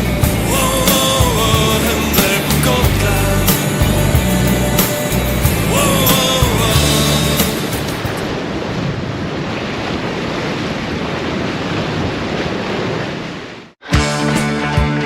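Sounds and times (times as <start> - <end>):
music with a beat: 0.0 - 8.1, 13.8 - 15.0
waves: 0.0 - 13.8
wind: 0.0 - 13.8.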